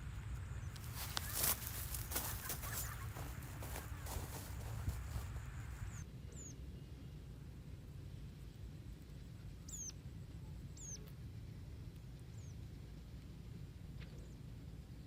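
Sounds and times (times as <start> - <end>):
steady low rumble: 0.0 - 6.1
small bird chirping: 0.5 - 6.6, 9.6 - 10.0, 10.7 - 11.2.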